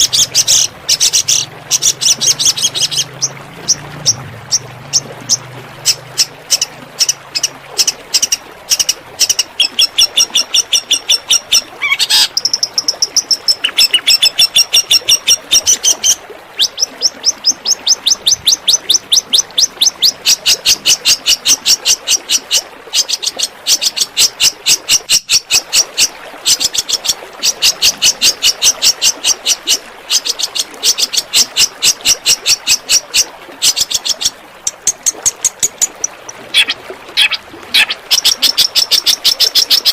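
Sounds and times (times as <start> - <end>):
songbird singing rapid high notes: 0.0 - 21.2, 34.0 - 39.9.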